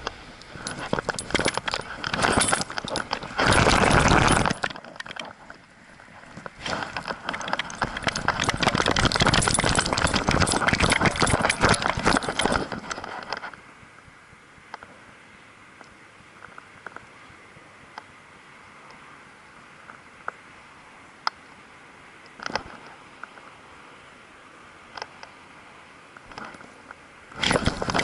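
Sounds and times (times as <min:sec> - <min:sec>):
metallic jangling and clicking: 0:00.6 - 0:05.5, 0:06.8 - 0:13.6, 0:27.4 - 0:28.0.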